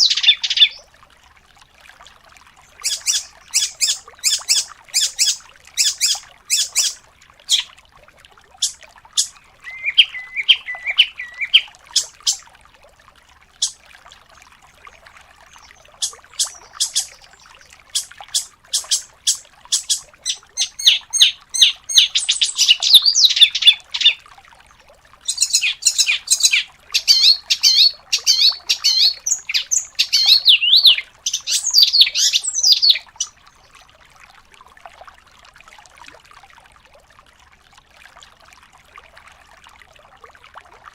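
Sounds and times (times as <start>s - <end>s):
songbird singing trills: 0.0s - 0.8s, 2.8s - 7.7s, 8.6s - 12.4s, 15.5s - 24.2s, 25.2s - 33.4s.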